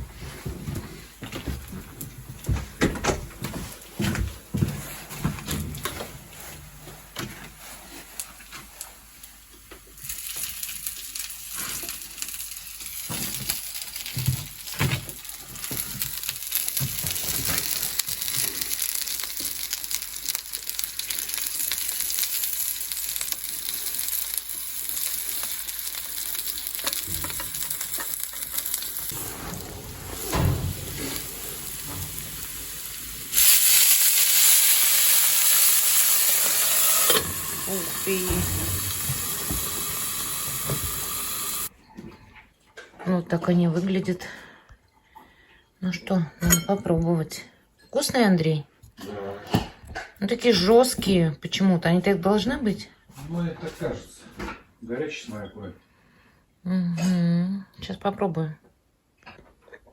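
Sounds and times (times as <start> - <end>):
dumplings sizzling in oil: 8.1 - 41.7
stirring knocks and scrapes: 26.8 - 32.5.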